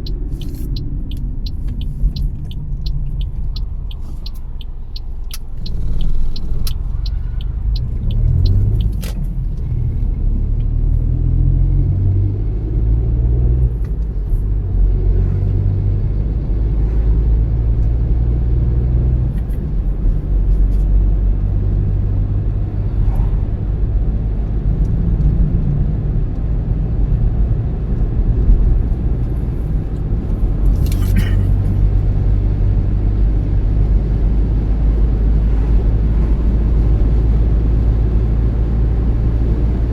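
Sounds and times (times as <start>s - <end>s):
evenly spaced ticks: 0.0s - 9.6s
car engine and road rumble: 0.0s - 39.9s.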